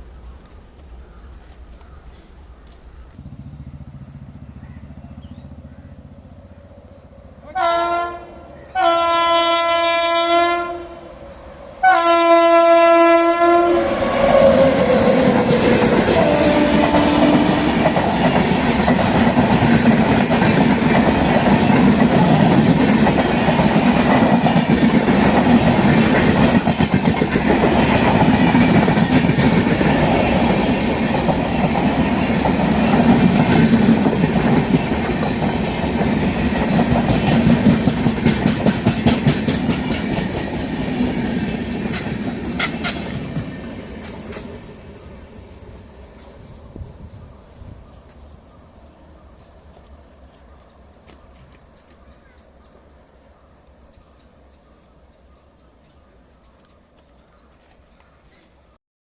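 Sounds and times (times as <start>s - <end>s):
train coaches rumbling past: 0.0s - 58.8s
locomotive horn blasts: 7.4s - 11.1s, 11.8s - 14.9s, 16.2s - 17.7s
wheels clacking over rail joints: 14.5s - 44.8s.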